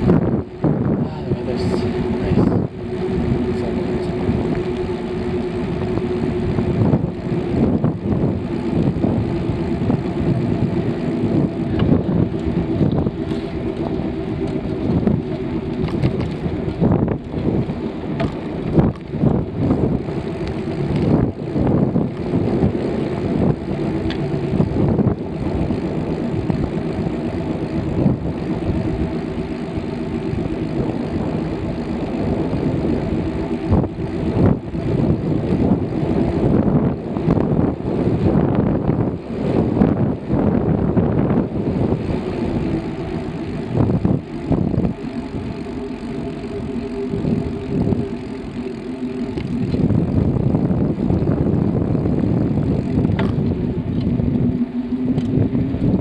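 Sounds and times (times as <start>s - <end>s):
bicycle hum: 0.0s - 56.0s
bicycle knocks and rattles: 9.9s - 22.8s, 52.6s - 54.2s.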